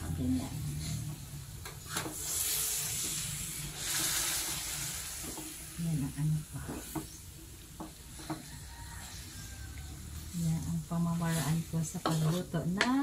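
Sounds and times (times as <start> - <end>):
meat sizzling in a wok: 0.0 - 12.7
wooden spatula scraping a pan: 1.9 - 7.2, 7.8 - 9.6, 10.2 - 12.7.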